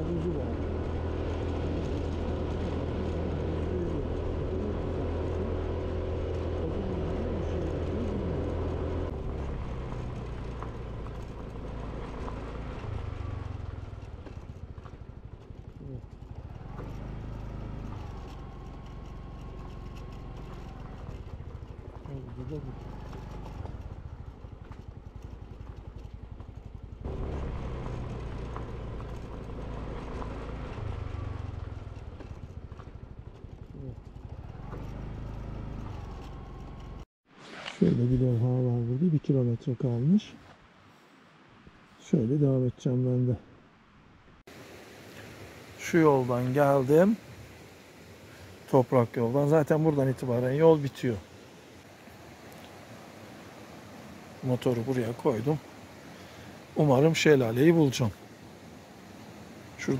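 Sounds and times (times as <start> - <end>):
motorcycle engine running: 0.0 - 37.1.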